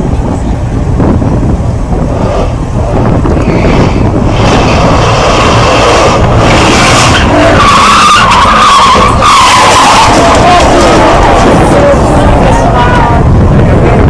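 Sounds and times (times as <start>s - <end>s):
road and engine noise: 0.0s - 14.0s
car tyres skidding: 2.1s - 13.2s
wavering tyre squeal: 3.3s - 13.2s.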